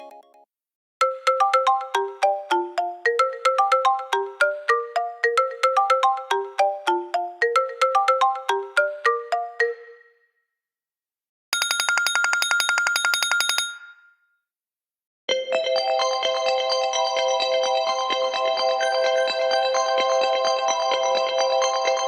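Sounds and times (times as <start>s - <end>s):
melodic phone ringtone: 0.0s - 0.4s, 1.0s - 10.2s, 11.6s - 14.1s
fast-pulsing phone ring: 11.6s - 14.0s.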